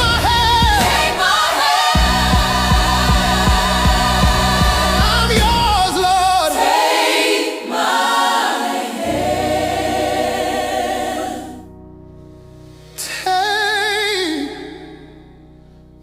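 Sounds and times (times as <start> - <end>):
backing music: 0.0 - 6.8
gospel choir singing: 0.0 - 11.8.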